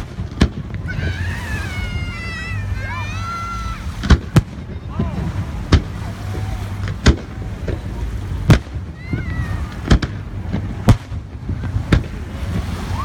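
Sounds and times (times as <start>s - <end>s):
fireworks pops: 0.0s - 1.0s, 4.0s - 6.0s, 6.8s - 7.9s, 8.5s - 12.8s
fireworks bangs: 0.0s - 1.3s, 4.0s - 13.0s
low rumble: 0.0s - 13.0s.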